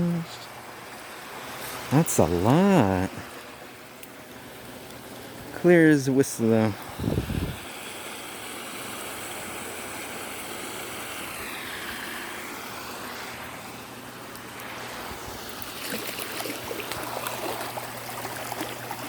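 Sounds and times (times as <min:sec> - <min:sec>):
runoff water rushing: 0:00.0 - 0:19.0
water splashing: 0:09.3 - 0:19.0.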